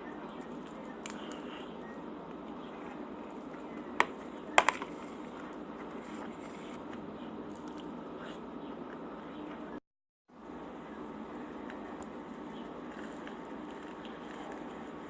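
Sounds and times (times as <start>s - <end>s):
background hum: 0.0s - 15.0s
soft chewing: 11.3s - 15.0s.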